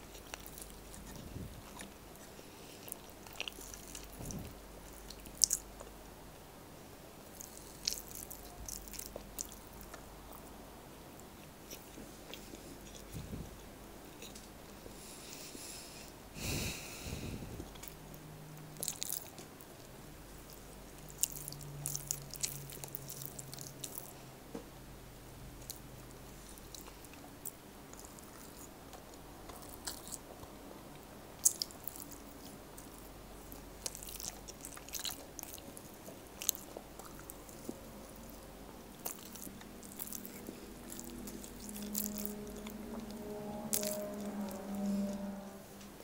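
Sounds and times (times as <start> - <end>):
person chewing soft food: 0.0 - 6.2, 7.2 - 24.3, 25.4 - 45.4.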